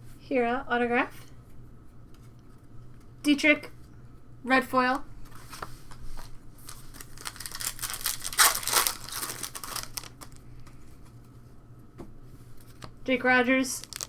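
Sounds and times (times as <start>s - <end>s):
foil wrapper crinkling: 5.3s - 10.4s, 13.7s - 14.0s.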